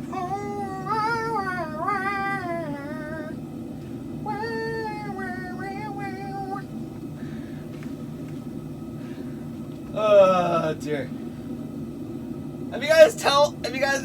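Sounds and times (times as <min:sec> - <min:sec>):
high-pitched voice warbling: 0:00.0 - 0:03.4, 0:04.3 - 0:06.7
steady low hum: 0:00.0 - 0:14.0.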